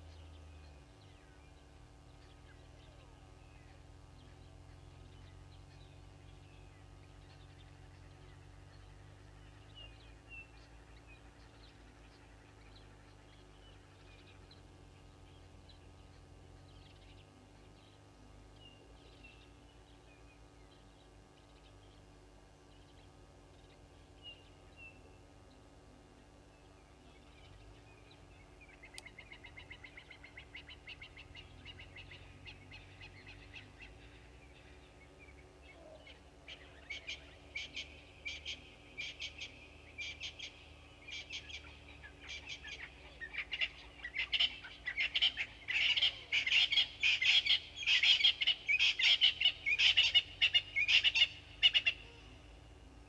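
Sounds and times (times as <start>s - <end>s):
harsh bird calls: 26.8s - 52.6s.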